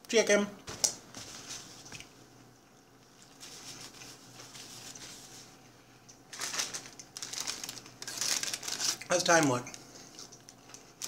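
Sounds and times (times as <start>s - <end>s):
person chewing softly: 9.7s - 11.0s.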